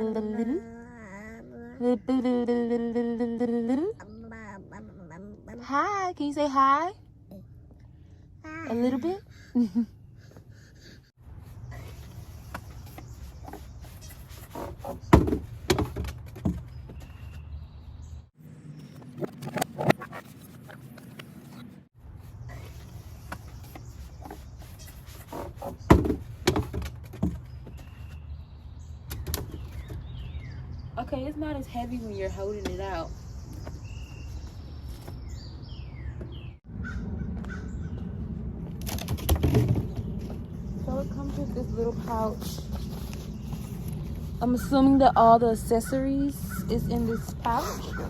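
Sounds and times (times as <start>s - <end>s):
baby babbling and squealing: 0.3s - 1.9s, 4.0s - 5.7s, 8.4s - 9.5s.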